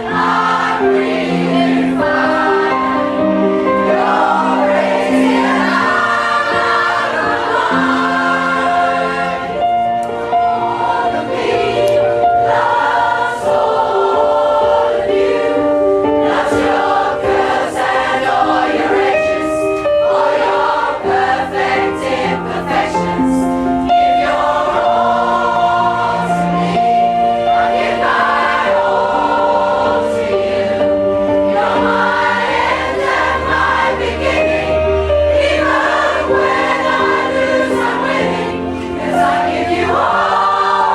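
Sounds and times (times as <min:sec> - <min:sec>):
choir singing: 0:00.0 - 0:40.9
instrumental accompaniment: 0:00.0 - 0:40.9.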